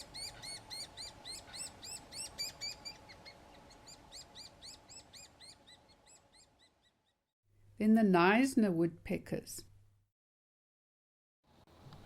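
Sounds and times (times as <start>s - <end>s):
woodpecker chick begging chirps: 0.0s - 7.2s.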